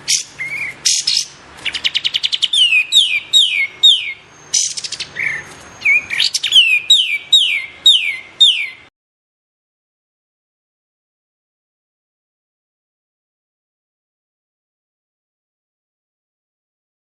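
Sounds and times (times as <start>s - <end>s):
bird whistling downward notes: 0.1s - 8.9s.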